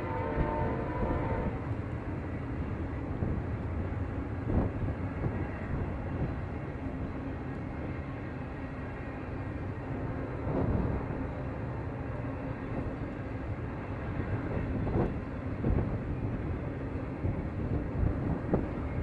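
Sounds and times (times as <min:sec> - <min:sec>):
train horn blast: 0:00.0 - 0:01.7
train rumble: 0:00.0 - 0:19.0.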